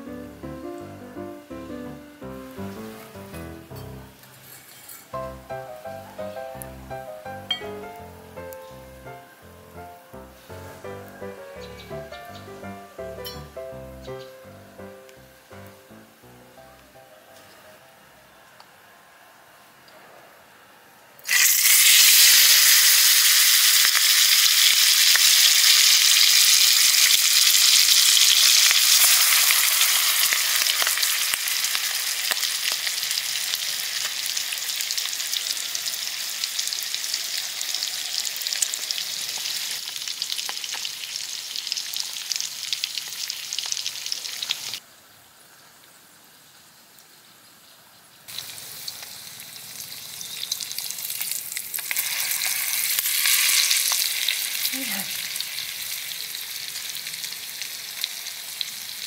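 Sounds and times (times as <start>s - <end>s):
bacon sizzling in hot oil: 21.2s - 44.8s, 48.3s - 59.0s.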